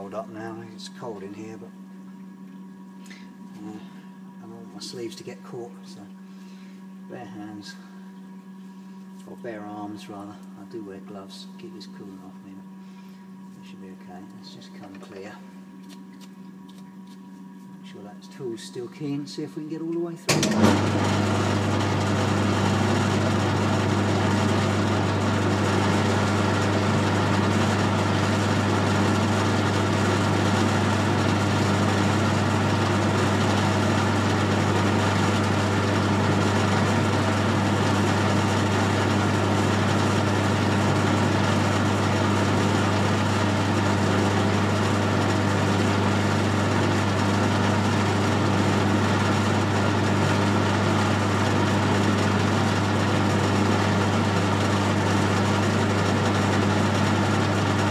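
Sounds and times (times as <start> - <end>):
metal lathe humming: 20.3 - 57.9.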